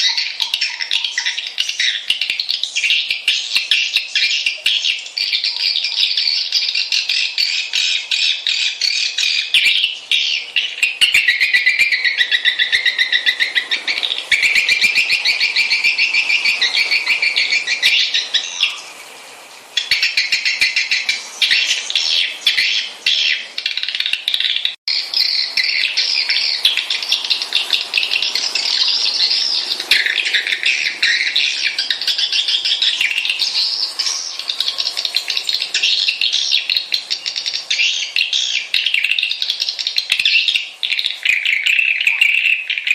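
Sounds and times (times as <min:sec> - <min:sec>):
swiftlets twittering: 0:08.8 - 0:19.0, 0:19.8 - 0:42.9.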